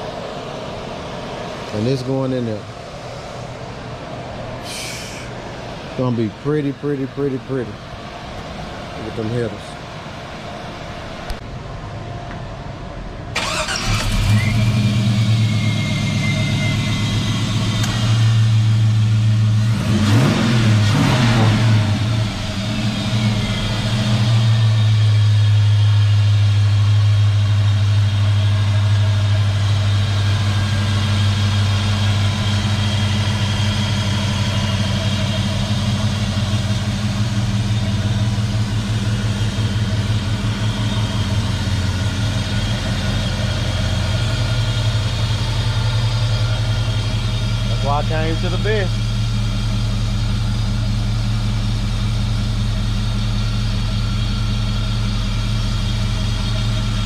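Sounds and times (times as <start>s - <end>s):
car engine starting and idling: 0.0s - 57.0s.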